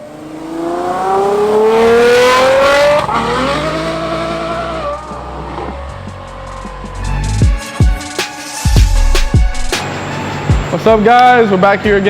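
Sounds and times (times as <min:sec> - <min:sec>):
car engine accelerating hard: 0:00.0 - 0:06.9.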